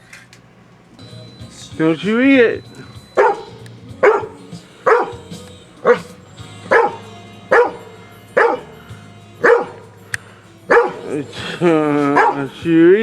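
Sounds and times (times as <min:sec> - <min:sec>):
faint steady hum: 0:00.0 - 0:13.0
dog barking: 0:02.8 - 0:10.0, 0:10.7 - 0:12.6.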